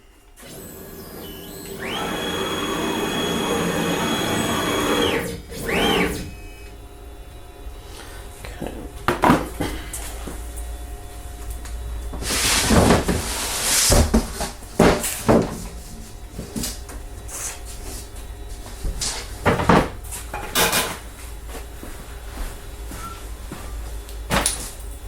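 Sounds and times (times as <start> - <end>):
objects scraping: 12.2 - 16.7
objects knocking on workbench: 19.4 - 20.0.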